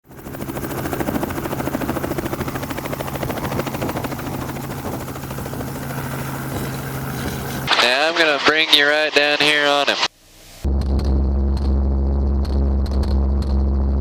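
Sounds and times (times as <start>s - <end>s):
helicopter rotor and engine: 0.0s - 10.1s.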